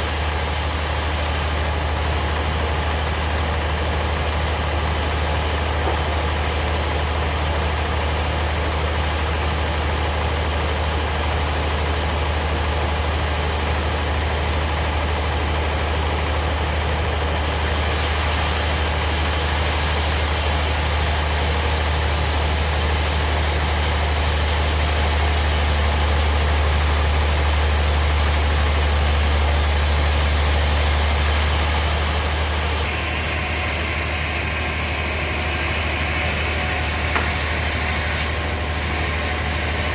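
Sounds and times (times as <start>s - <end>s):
sawmill running: 0.0s - 39.9s
blade hissing through wood: 17.1s - 39.7s.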